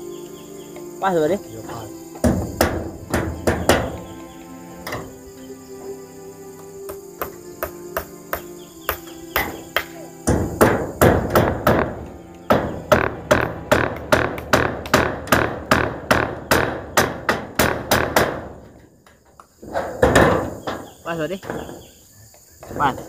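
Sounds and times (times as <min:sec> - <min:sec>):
hammer nailing metal roofing: 0:02.2 - 0:04.2, 0:04.8 - 0:05.2, 0:06.9 - 0:18.9, 0:19.6 - 0:22.0.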